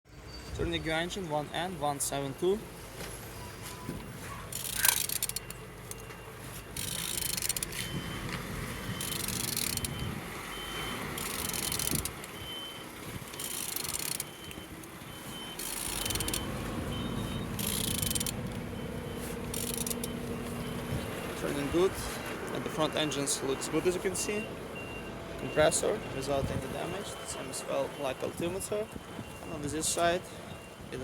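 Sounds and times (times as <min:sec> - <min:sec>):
low vehicle hum: 0:00.1 - 0:30.9
engine turned over with wrench: 0:04.0 - 0:22.1
faint reversing beeper: 0:13.4 - 0:22.2, 0:23.0 - 0:31.0.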